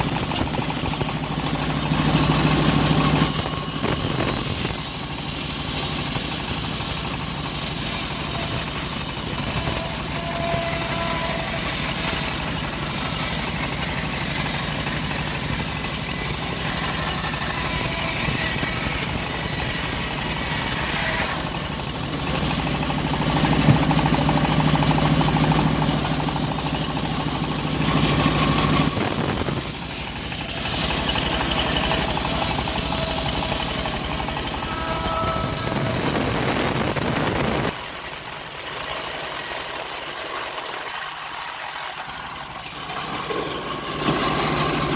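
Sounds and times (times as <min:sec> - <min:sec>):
bandsaw mill sawing wood: 0:00.0 - 0:44.9
deep loud hum: 0:16.9 - 0:38.0.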